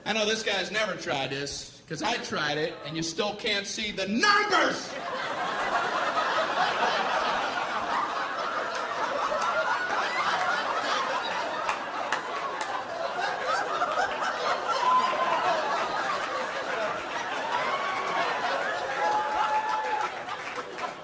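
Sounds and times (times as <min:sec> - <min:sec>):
theatre audience laughing: 0:04.6 - 0:21.0.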